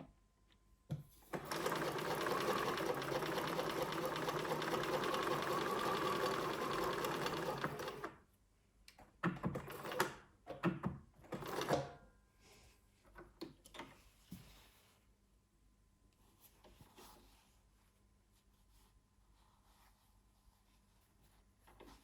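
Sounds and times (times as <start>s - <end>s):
sewing machine stitching: 1.3s - 8.2s, 9.3s - 10.2s.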